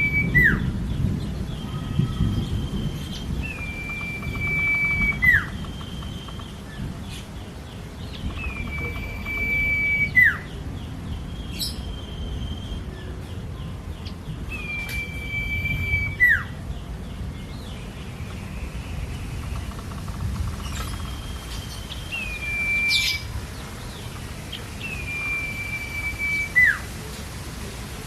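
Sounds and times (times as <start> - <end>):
bird long whistles: 0.0 - 0.7, 1.8 - 6.1, 8.4 - 10.4, 14.5 - 16.5, 21.0 - 23.3, 24.8 - 26.9
bird short high whistles: 3.5 - 5.6, 14.6 - 16.4, 22.3 - 23.2.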